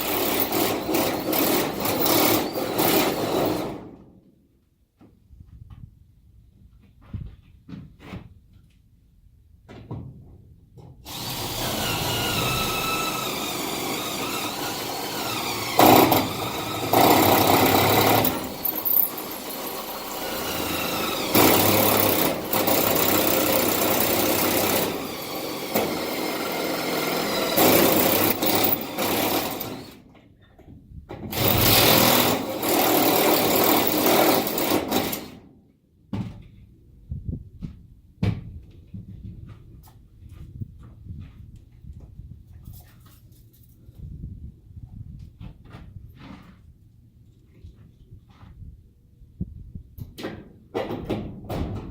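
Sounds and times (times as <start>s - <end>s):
cordless drill boring: 0.0s - 3.6s, 11.1s - 30.0s, 31.3s - 35.4s.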